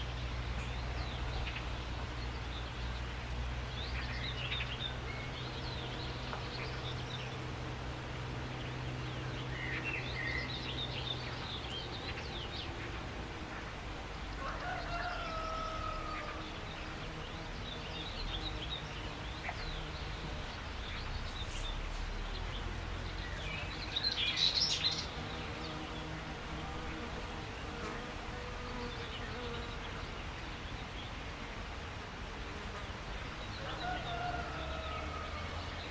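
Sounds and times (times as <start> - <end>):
small birds chirping: 8.4 - 31.5
rooster crowing: 14.3 - 16.6, 33.6 - 35.8.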